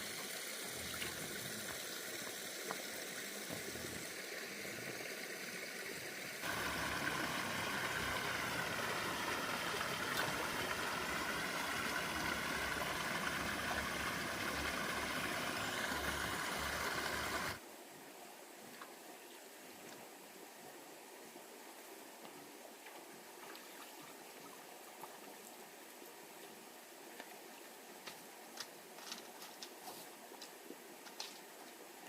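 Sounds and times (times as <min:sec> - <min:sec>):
running water rushing: 0:00.0 - 0:17.7.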